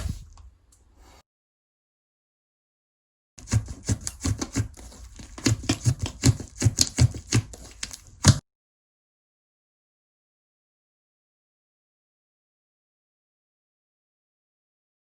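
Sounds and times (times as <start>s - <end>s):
slime squished making sticky pops: 3.4s - 8.4s.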